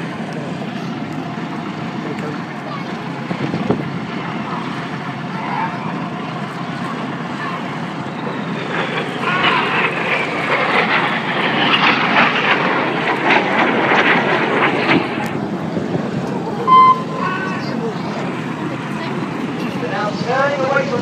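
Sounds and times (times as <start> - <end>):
jet engine noise: 0.0 - 21.0
jet whine falling in pitch: 16.2 - 18.2.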